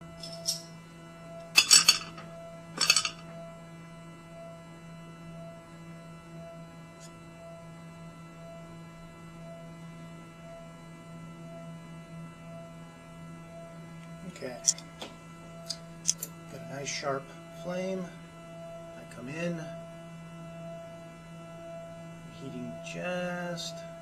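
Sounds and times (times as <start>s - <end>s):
faint pulsing tone: 0.0s - 24.0s
lathe electrical hum: 0.0s - 24.0s
clinking clatters: 1.5s - 3.2s.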